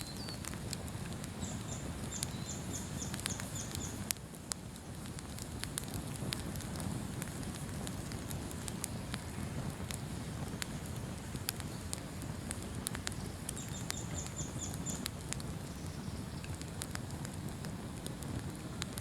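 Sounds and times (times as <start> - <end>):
small bird calling: 0.0 - 0.5, 1.4 - 4.1, 13.0 - 16.5
bonfire crackling and popping: 0.0 - 19.0.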